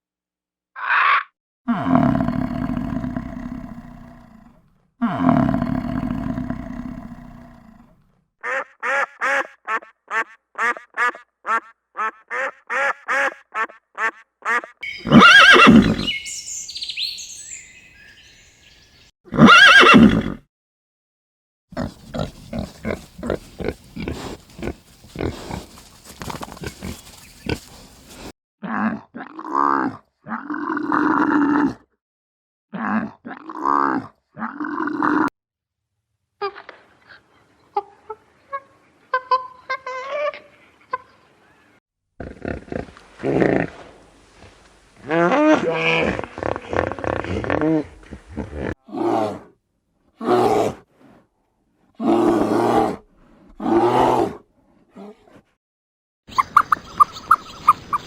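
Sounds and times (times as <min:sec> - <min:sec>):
short repeated animal calls: 0:00.8 - 0:01.3, 0:08.4 - 0:18.3
short pitched animal calls: 0:14.0 - 0:18.4
drawn-out low animal call: 0:14.8 - 0:18.4.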